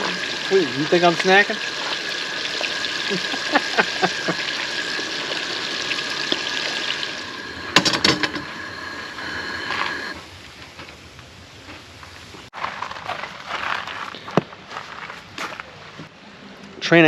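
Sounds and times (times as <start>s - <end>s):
fish sizzling in a pan: 0.0s - 10.5s.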